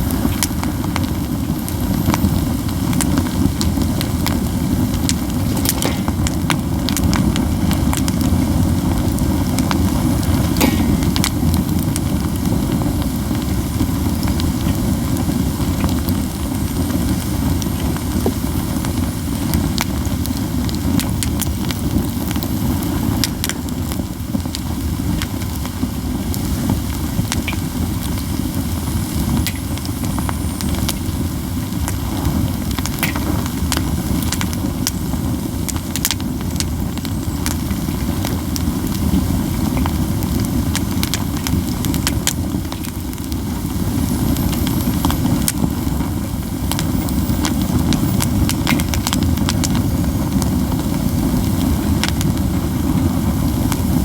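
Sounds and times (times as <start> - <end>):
pine cones crackling in campfire: 0.0 - 54.0.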